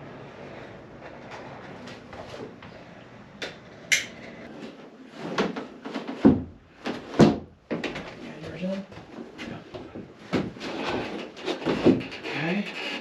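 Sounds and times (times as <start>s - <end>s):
knocks bumps and scrapes: 4.4s - 13.0s.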